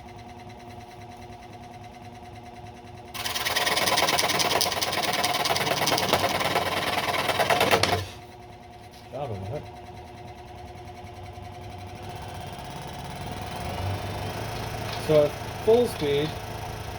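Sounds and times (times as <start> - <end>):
scroll saw cutting wood: 3.2 - 8.2.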